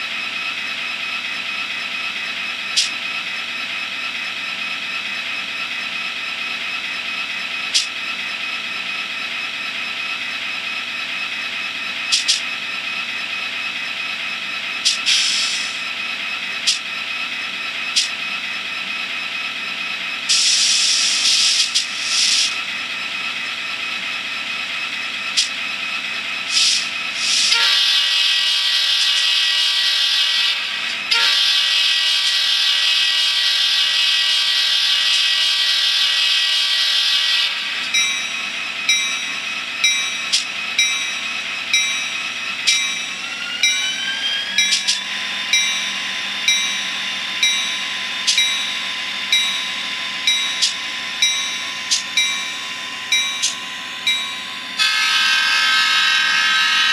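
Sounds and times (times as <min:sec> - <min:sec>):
model locomotive engine hum: 0:00.0 - 0:56.9
steady multi-tone horn: 0:26.5 - 0:37.9, 0:51.8 - 0:56.9.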